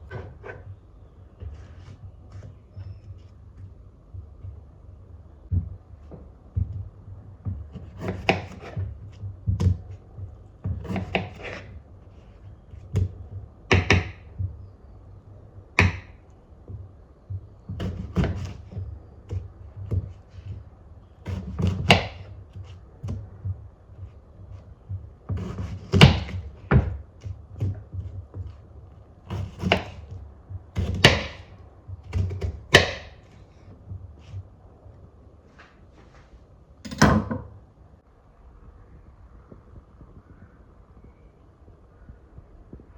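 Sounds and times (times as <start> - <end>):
knocks and scrapes on wood: 0.0 - 14.7, 15.8 - 34.5.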